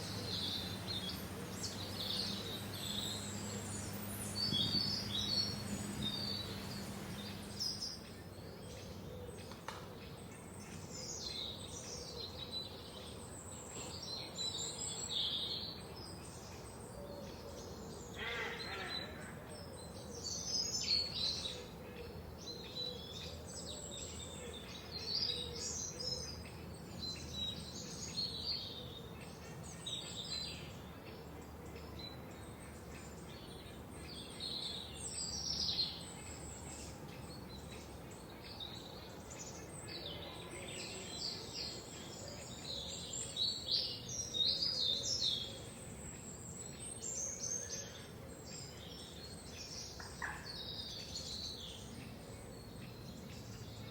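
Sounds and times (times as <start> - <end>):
soft background hiss: 0.0 - 8.1
songbirds chirping and trilling: 0.0 - 53.9.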